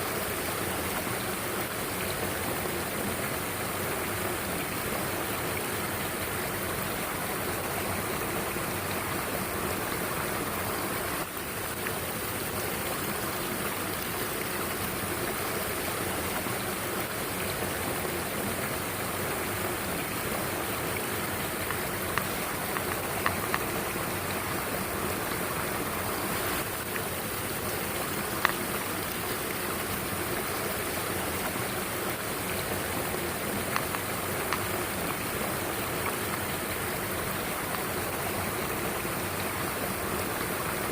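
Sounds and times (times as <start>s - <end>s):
stream rushing over rocks: 0.0s - 40.9s
faint sharp ticks: 21.6s - 23.7s.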